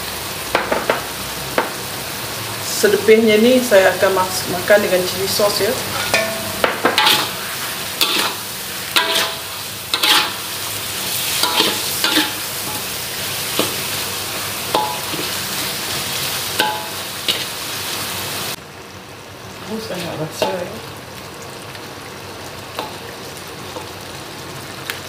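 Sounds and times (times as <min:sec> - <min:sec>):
food sizzling in a wok: 0:00.0 - 0:25.0
spatula scraping a wok: 0:05.8 - 0:17.8.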